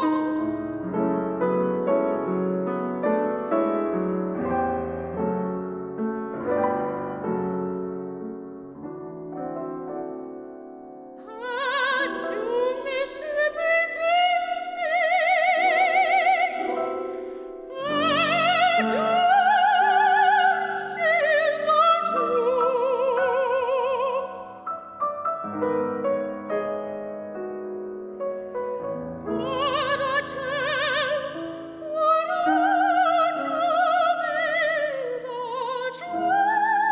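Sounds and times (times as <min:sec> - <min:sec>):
soprano singing opera: 0:00.0 - 0:01.5, 0:11.2 - 0:24.9, 0:28.5 - 0:36.9
piano accompaniment: 0:00.0 - 0:36.9.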